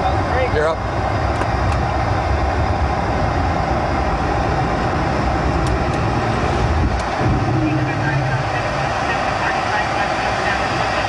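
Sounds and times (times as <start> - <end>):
jet engines at takeoff thrust: 0.0 - 11.0
air rushing over aircraft nose: 4.4 - 10.6
faint steady hum: 6.5 - 10.8.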